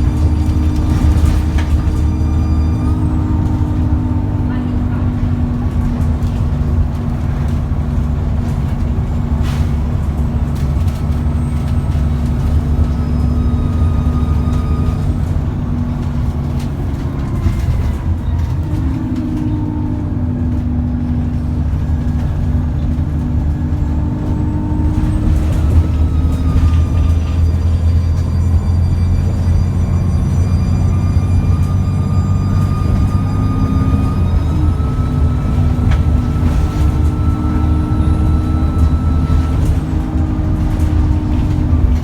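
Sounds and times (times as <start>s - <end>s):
bus diesel engine drone: 0.0s - 42.0s
turbo whine: 21.4s - 42.0s.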